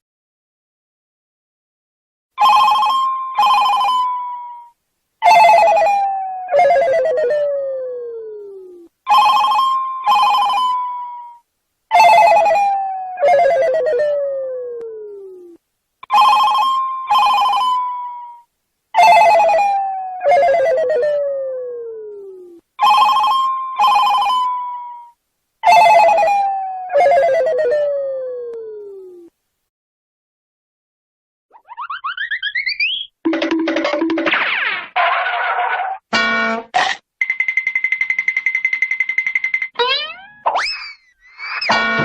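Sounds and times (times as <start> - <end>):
phone ringtone: 2.4 - 7.4, 9.1 - 14.0, 16.0 - 21.1, 22.8 - 27.7, 33.3 - 34.2, 37.2 - 40.5.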